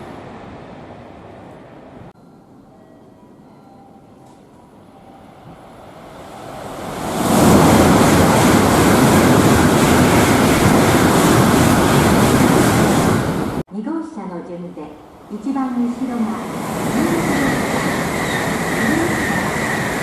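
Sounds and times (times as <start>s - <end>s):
train rushing past: 4.9s - 13.6s, 15.0s - 20.0s.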